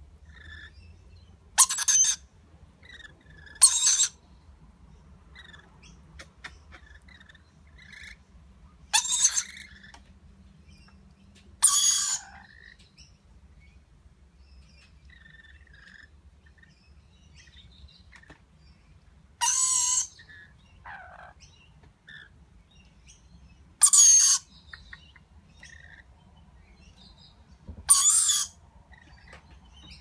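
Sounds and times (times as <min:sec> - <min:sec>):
lorikeets screeching: 0:01.6 - 0:02.2, 0:02.8 - 0:04.2, 0:08.9 - 0:10.0, 0:11.6 - 0:12.8, 0:19.4 - 0:21.4, 0:23.8 - 0:25.0, 0:27.9 - 0:29.4.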